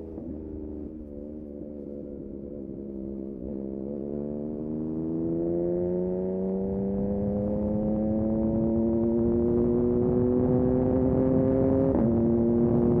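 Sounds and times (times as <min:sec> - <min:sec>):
motorcycle engine revving: 0:03.1 - 0:13.0.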